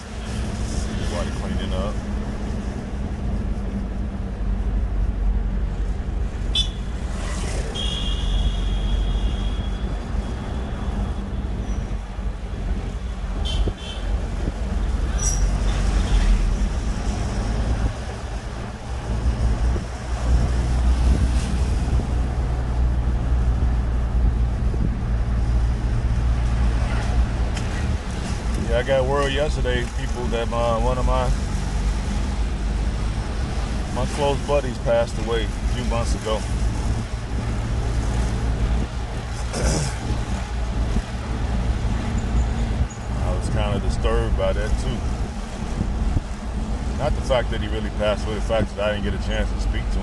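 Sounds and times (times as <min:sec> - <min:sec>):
vehicle engine and road noise: 0:00.0 - 0:50.0.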